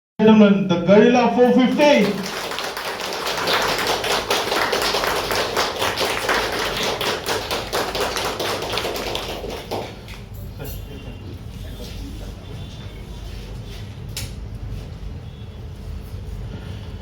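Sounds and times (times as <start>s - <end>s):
audience applauding: 1.6s - 10.2s.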